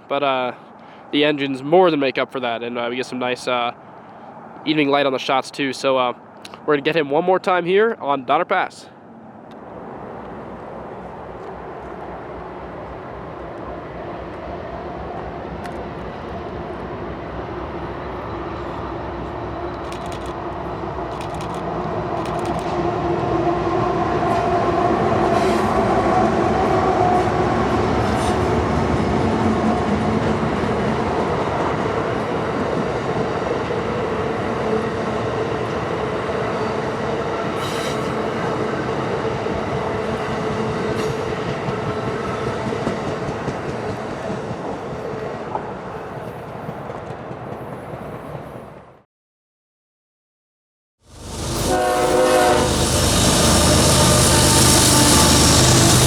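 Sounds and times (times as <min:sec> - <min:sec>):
diesel locomotive engines under load: 0:09.5 - 0:48.1, 0:51.1 - 0:56.0
train rolling by: 0:09.6 - 0:48.5, 0:51.1 - 0:56.0.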